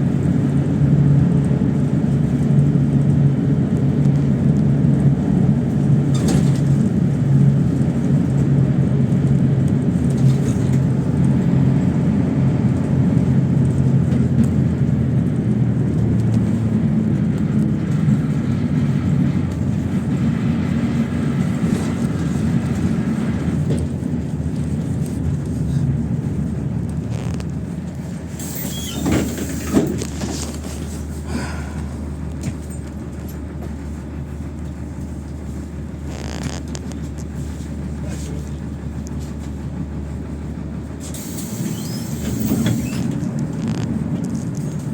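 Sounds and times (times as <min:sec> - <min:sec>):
bus engine running: 0:00.0 - 0:44.9
road noise and rattles: 0:00.0 - 0:44.9
brief squeak: 0:28.4 - 0:29.7, 0:41.2 - 0:43.1.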